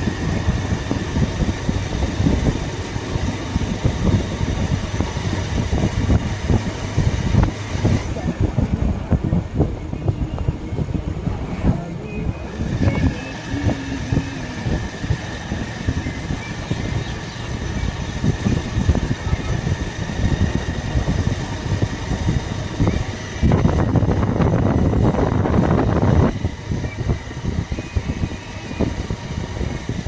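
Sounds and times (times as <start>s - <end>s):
motorcycle engine running: 0.0s - 30.0s
wind buffeting microphone: 0.0s - 30.0s
thin steady high whine: 9.1s - 30.0s.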